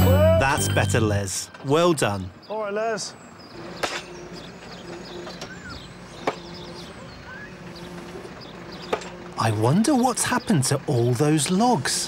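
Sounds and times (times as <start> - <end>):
faint bird chirps: 2.3 - 9.1.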